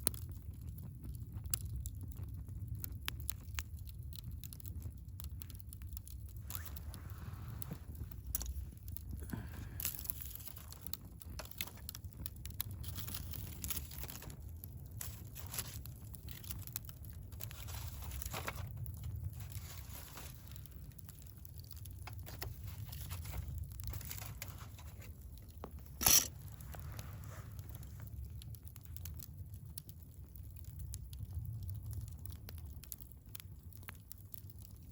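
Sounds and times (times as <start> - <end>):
wood fire crackling and popping: 0.0 - 34.9.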